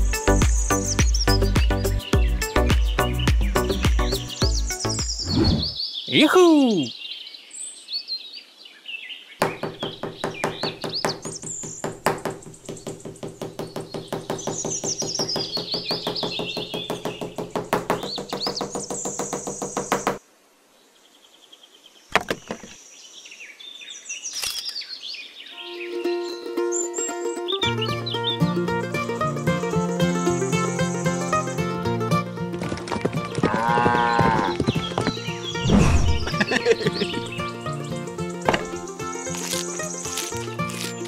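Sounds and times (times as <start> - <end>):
birds chirping: 0.0 - 20.2, 20.8 - 41.0
fast even knocking: 9.4 - 20.2.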